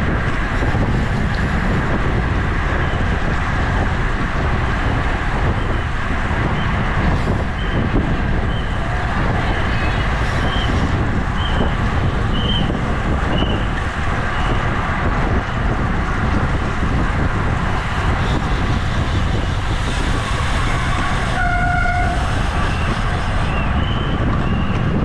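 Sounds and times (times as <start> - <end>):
wind and road rush: 0.0 - 25.0
short horn-like tone: 20.7 - 22.2.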